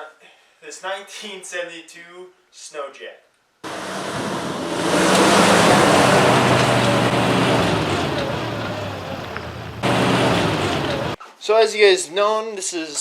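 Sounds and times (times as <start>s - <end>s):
rushing noise: 3.7s - 11.2s
snowmobile engine running: 3.7s - 11.2s.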